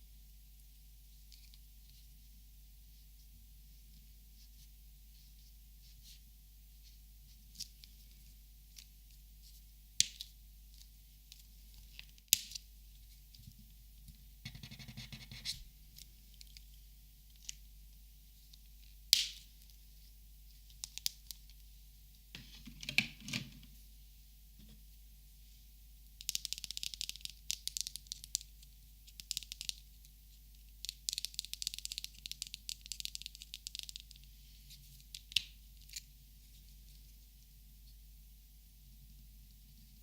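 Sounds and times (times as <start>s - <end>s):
markers clicking and tapping: 14.5s - 15.6s.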